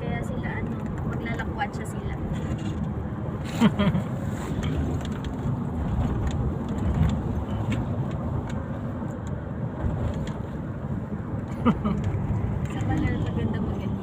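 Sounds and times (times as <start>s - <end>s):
vehicle road and engine rumble: 0.0s - 14.0s.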